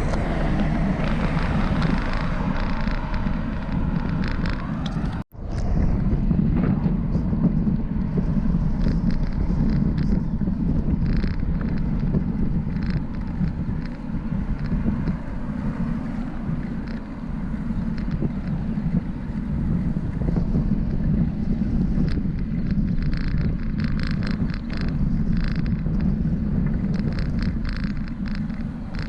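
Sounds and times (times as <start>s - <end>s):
wind buffeting microphone: 0.0s - 29.0s
faint clicks: 22.0s - 29.0s.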